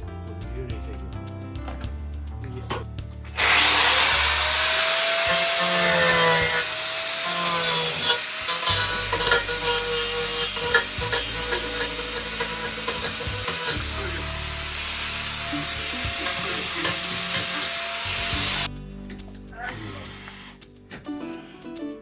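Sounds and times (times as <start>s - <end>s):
harsh sawing rasping noise: 3.3s - 18.7s, 19.7s - 20.7s.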